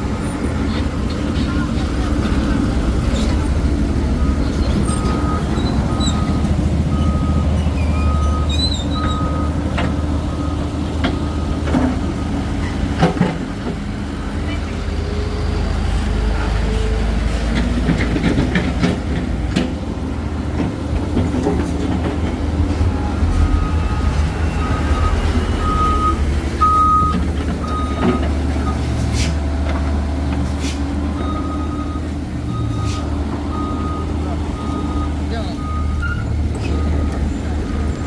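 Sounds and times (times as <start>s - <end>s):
excavator diesel engines running: 0.0s - 38.0s
reversing alarm beeping: 3.4s - 11.7s, 22.9s - 28.9s, 31.2s - 37.3s.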